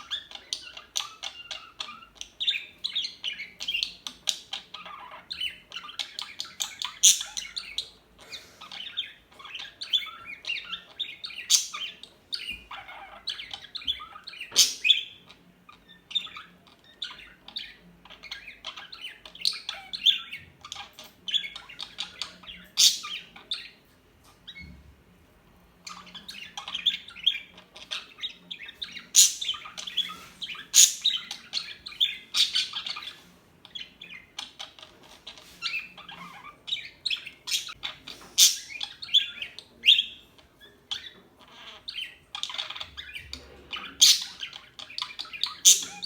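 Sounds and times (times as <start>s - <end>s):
parakeets chirping and chattering: 0.0s - 46.0s
sharp parakeet calls: 0.1s - 17.8s, 21.3s - 23.7s, 25.9s - 34.4s, 35.6s - 40.2s, 44.0s - 46.0s.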